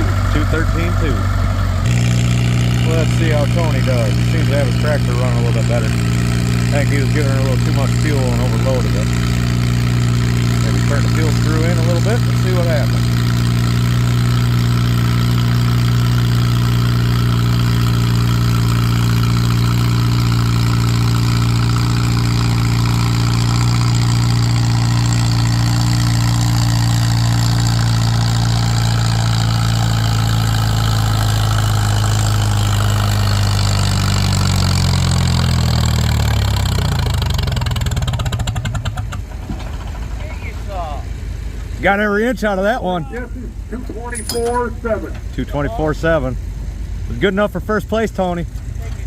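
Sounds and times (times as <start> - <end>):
tractor engine working under load: 0.0 - 49.0.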